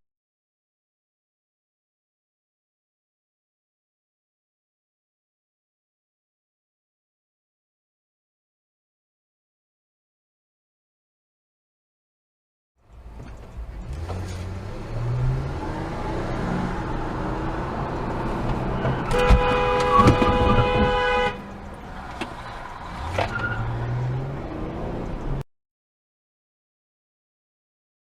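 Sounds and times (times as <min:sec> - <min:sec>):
road and engine noise in car: 0:12.8 - 0:25.4
car horn: 0:18.2 - 0:21.7.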